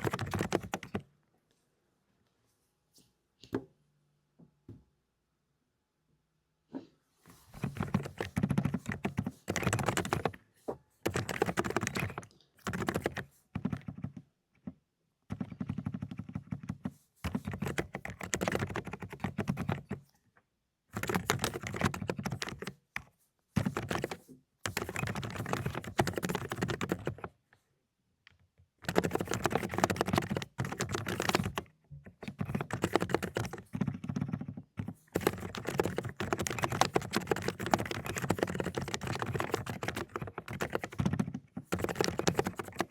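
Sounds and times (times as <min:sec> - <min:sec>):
mechanical keyboard typing: 0:00.0 - 0:01.0, 0:07.6 - 0:10.4, 0:11.0 - 0:20.0, 0:20.9 - 0:27.4, 0:28.8 - 0:42.9.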